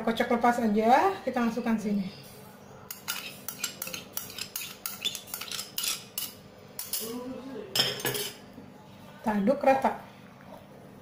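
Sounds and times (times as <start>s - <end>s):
metal utensil scraping a bowl: 2.9s - 7.0s.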